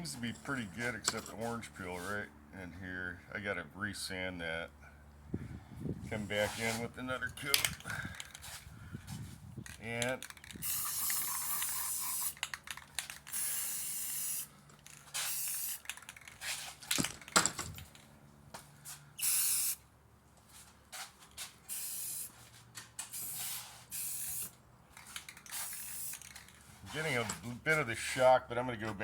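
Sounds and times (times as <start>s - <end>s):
aerosol spray can hissing: 10.6s - 12.4s, 13.3s - 14.5s, 15.2s - 15.8s, 19.2s - 19.8s, 21.7s - 22.3s, 23.1s - 24.5s, 25.5s - 26.3s.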